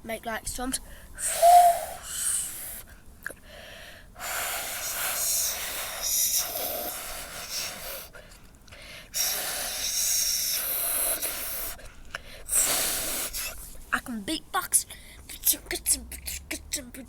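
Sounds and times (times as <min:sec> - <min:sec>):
person imitating storm with mouth: 0:01.2 - 0:02.4.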